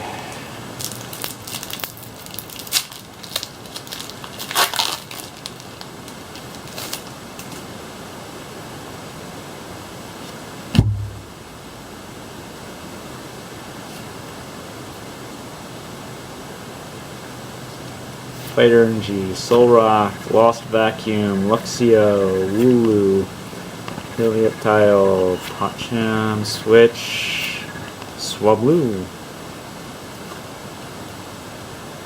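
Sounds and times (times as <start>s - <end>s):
background hiss: 0.0s - 32.0s
foil pack crinkling: 0.8s - 7.7s, 17.7s - 28.3s
dull thump: 10.7s - 11.4s.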